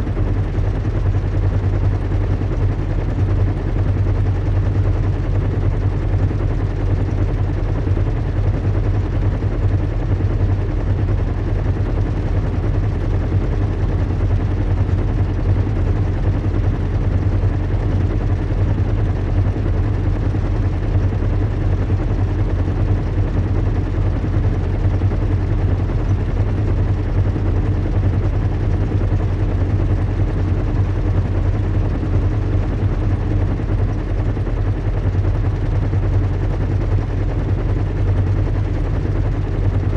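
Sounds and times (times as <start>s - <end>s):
low engine drone: 0.0s - 39.9s.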